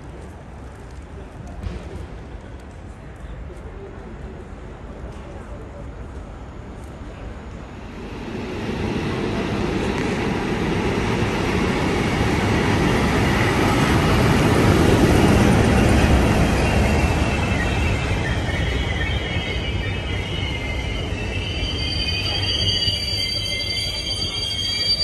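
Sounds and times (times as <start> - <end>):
diesel train rumbling on rails: 6.0 - 25.0.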